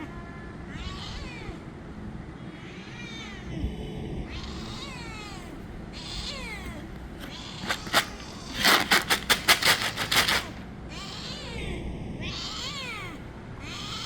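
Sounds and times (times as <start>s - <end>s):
cat meowing: 0.0s - 1.6s, 4.3s - 9.3s, 10.0s - 14.0s.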